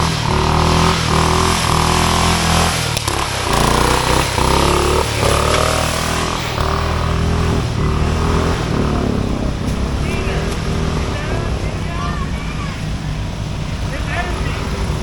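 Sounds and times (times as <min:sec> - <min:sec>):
lawn mower engines revving: 0:00.0 - 0:15.0.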